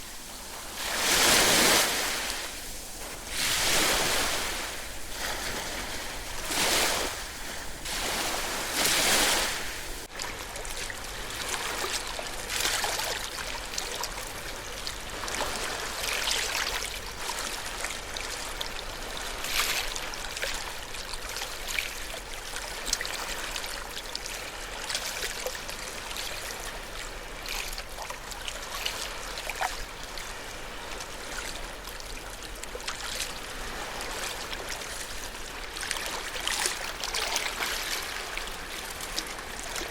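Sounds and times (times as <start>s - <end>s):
ocean waves surging: 0.0s - 10.1s
water hissing and fizzing: 0.0s - 10.1s.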